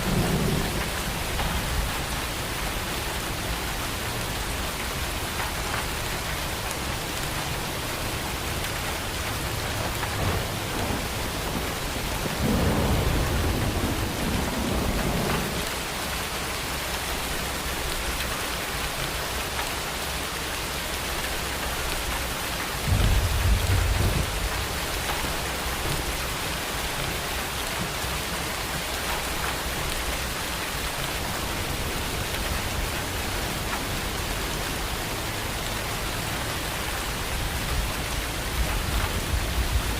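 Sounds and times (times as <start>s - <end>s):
thunder rumbling: 0.0s - 2.3s, 9.6s - 15.7s, 22.8s - 27.1s
heavy rain falling: 0.0s - 39.9s.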